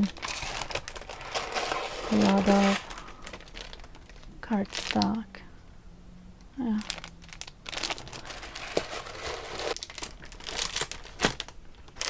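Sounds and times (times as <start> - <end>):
packaging crinkling: 0.0 - 5.2, 6.7 - 12.0.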